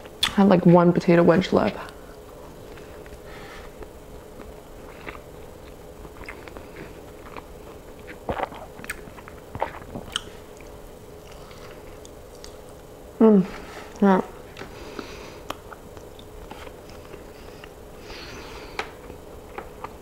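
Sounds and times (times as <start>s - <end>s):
faint steady hum: 0.0s - 20.0s
chewing food: 3.8s - 12.9s.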